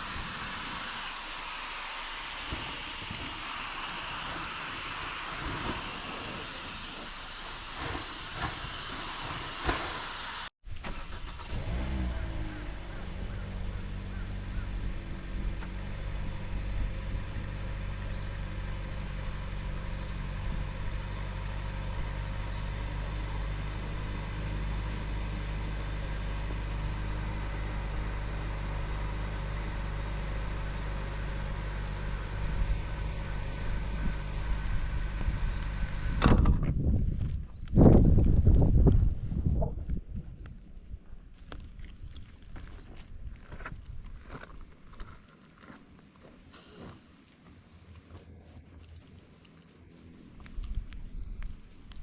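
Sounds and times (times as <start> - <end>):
engine idling: 10.8 - 36.6.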